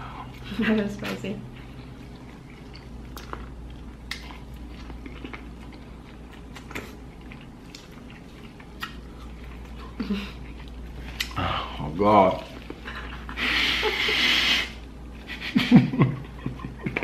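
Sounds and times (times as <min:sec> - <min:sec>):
chewing corn on the cob: 0:01.0 - 0:11.4.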